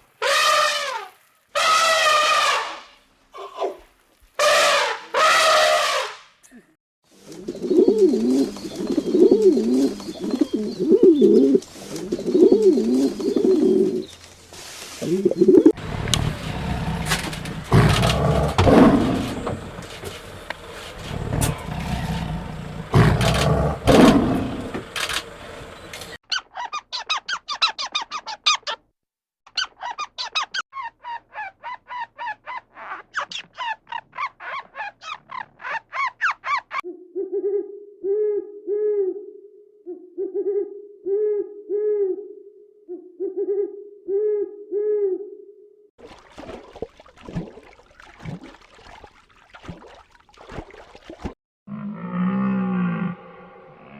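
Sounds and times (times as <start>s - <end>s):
noisy irregular animal calls: 0.2s - 6.2s, 15.0s - 28.8s.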